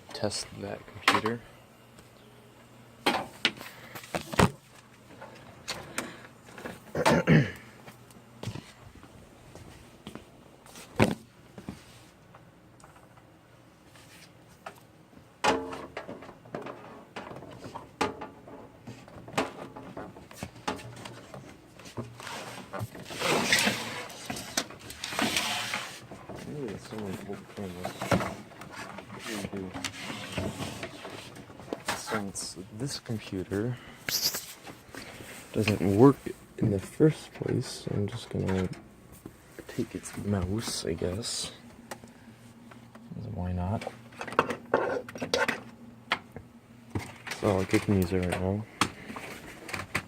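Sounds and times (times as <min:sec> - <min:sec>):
scraping and rustling: 0:16.1 - 0:33.6
cable scrape or rattle: 0:22.2 - 0:26.0.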